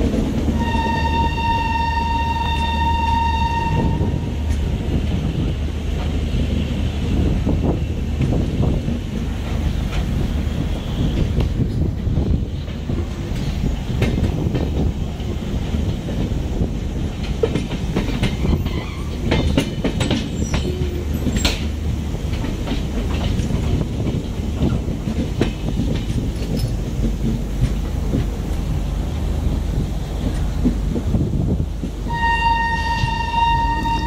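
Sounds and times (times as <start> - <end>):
train coaches rumbling: 0.0 - 34.0
train horn: 0.6 - 4.4, 32.1 - 34.0
wheels clattering over rail joints: 7.1 - 29.5.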